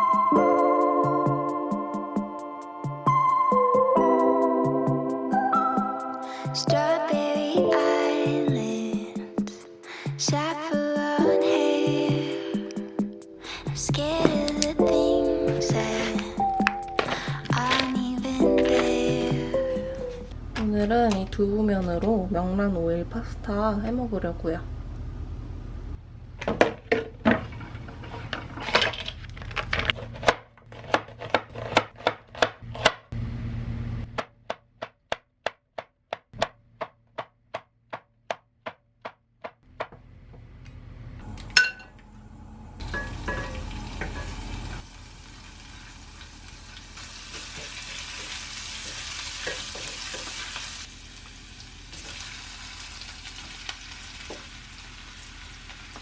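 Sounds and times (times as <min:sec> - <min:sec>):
utensils and dishes clattering: 0:42.8 - 0:44.4
oil sizzling in frying pan: 0:42.8 - 0:56.0.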